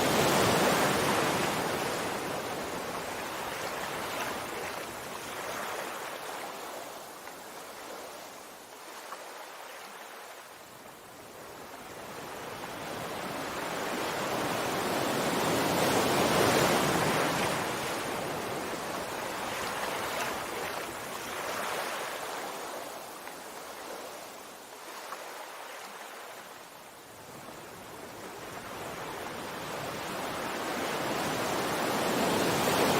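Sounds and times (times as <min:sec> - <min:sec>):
sea surf crashing on shore: 0:00.0 - 0:07.0, 0:11.9 - 0:32.9.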